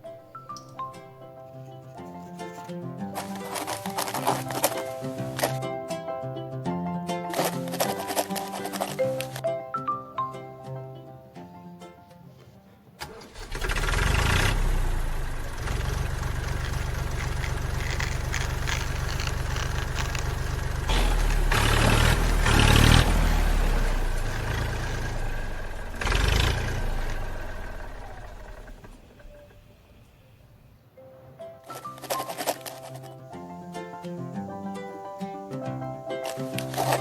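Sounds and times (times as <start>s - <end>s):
starter click: 3.2s - 5.6s, 7.3s - 9.5s, 13.0s - 23.4s, 36.2s - 37.0s
tractor engine chugging and revving: 3.2s - 5.6s, 13.0s - 30.1s, 36.2s - 37.0s.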